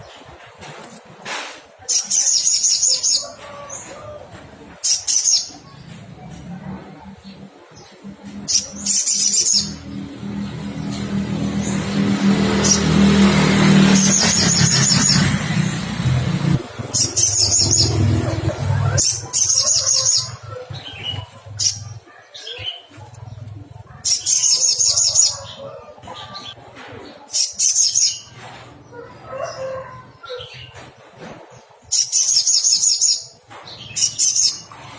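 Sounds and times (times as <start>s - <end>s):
loud low engine hum: 9.6s - 22.0s.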